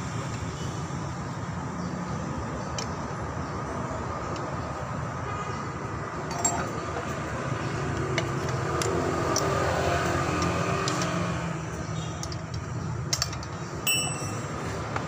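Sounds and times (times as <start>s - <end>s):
metallic clinks of tools: 6.3s - 6.8s, 13.1s - 14.7s.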